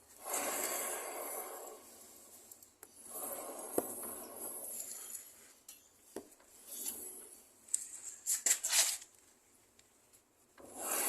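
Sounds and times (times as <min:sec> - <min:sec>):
scooter wheel rubbing whir: 0:00.0 - 0:05.5, 0:10.6 - 0:11.0.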